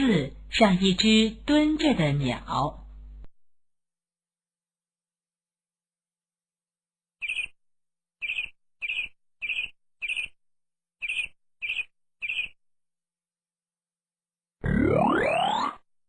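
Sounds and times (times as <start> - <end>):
bird chirping: 7.2 - 7.6, 8.2 - 10.4, 11.0 - 12.6.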